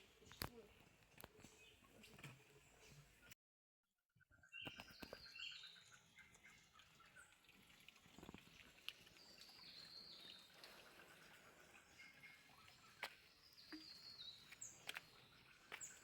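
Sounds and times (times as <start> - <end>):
faint birds chirping and whistling: 4.2 - 7.5, 9.1 - 16.0.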